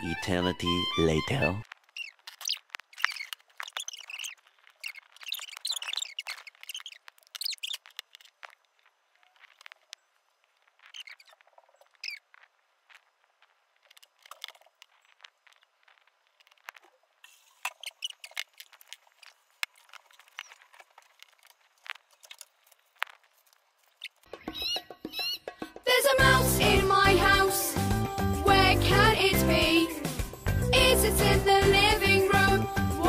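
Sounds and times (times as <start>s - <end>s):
squeaky chirps of play-doh: 0.6s - 12.6s, 13.9s - 23.3s, 23.9s - 25.5s.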